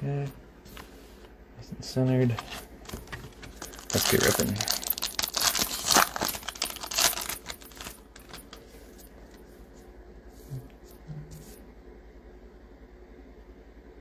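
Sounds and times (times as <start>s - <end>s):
cards clicking and rustling: 2.3s - 8.7s
card pack wrapper crinkling: 2.4s - 8.6s.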